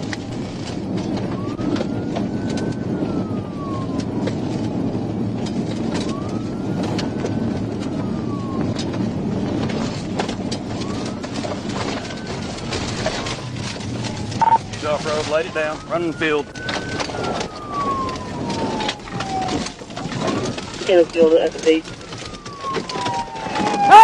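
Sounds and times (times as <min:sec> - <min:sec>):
car driving at high speed: 0:00.0 - 0:24.0
police siren wailing: 0:00.0 - 0:24.0.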